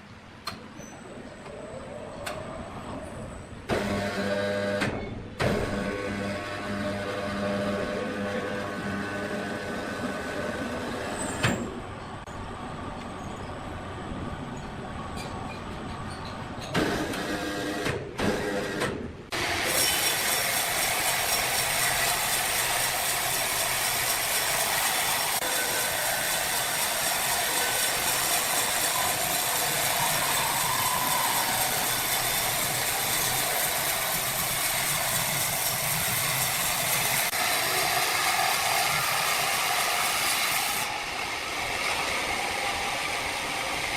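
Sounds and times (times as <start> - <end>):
sawmill machinery clattering: 15.2 - 43.9.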